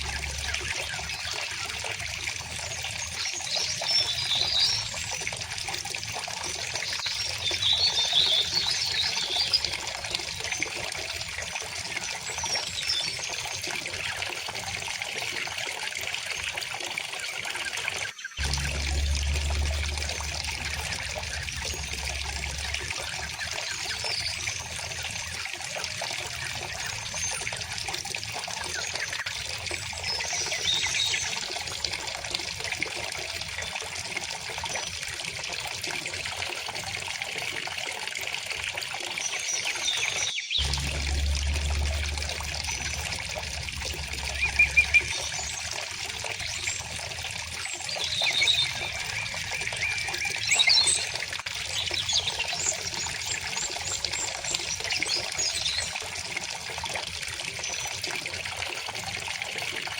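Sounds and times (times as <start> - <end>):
small birds chirping and trilling: 0.0 - 14.3, 17.3 - 31.8, 39.0 - 56.0
river water flowing: 18.4 - 31.2, 39.4 - 55.9.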